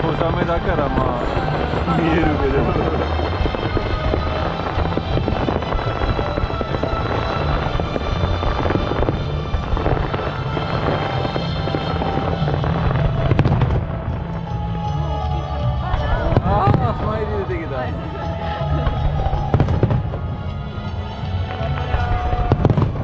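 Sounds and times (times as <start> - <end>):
fireworks crackling: 0.0 - 23.0
music with steady bass: 0.0 - 23.0
firework bang: 0.8 - 14.2.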